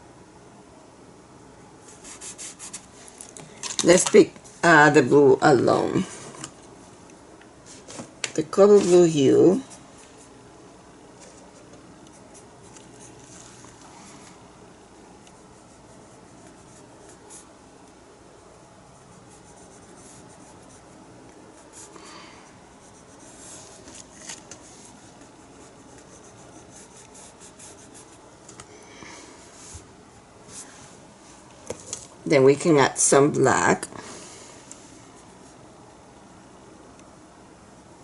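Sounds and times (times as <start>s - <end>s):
paintbrush scratching on surface: 1.8s - 2.9s, 15.2s - 17.5s, 18.9s - 22.0s, 22.7s - 28.2s.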